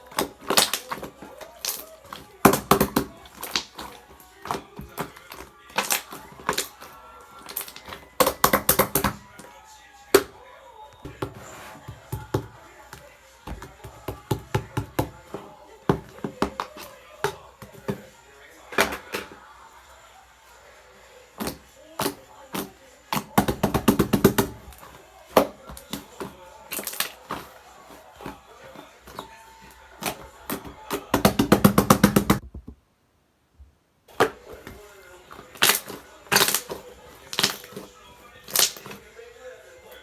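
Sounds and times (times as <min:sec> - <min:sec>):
faint tv sound: 0:00.0 - 0:32.4, 0:33.5 - 0:40.0.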